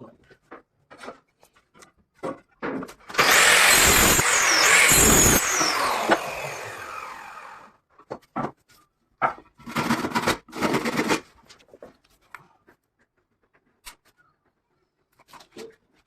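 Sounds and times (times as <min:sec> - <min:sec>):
power drill spinning down: 0:03.1 - 0:07.7.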